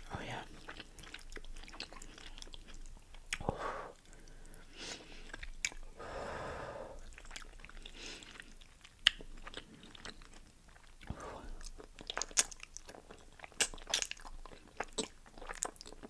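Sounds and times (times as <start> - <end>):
wet chewing smacks: 0.4 - 6.0, 7.0 - 16.0.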